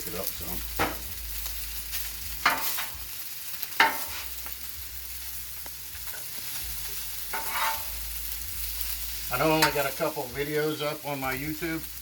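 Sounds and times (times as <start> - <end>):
rice sizzling in oil: 0.0 - 12.0
metal spatula scraping griddle: 0.8 - 3.0, 3.7 - 4.5, 6.0 - 10.1.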